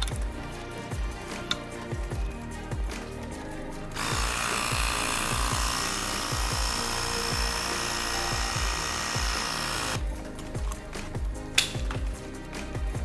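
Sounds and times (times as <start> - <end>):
background music with steady beat: 0.0 - 13.0
electric tire pump whining: 3.9 - 10.8.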